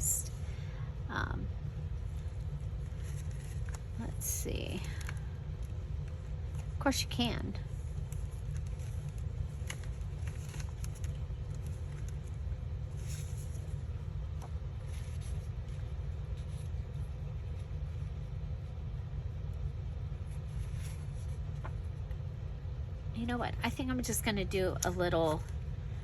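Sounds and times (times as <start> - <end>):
faint steady hum: 0.0 - 26.0
low background rumble: 0.0 - 26.0
paper rustling and clicks: 2.9 - 4.0, 8.0 - 17.0.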